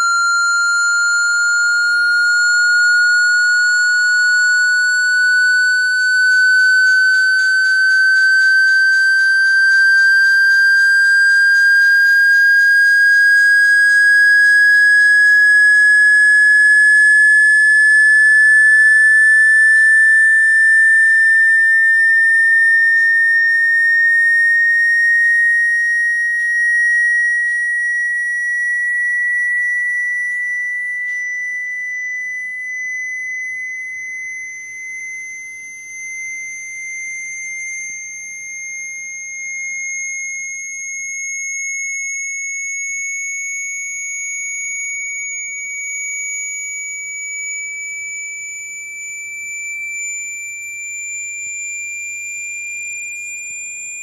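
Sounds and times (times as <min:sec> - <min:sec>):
rising sine tone: 0:00.0 - 0:54.0.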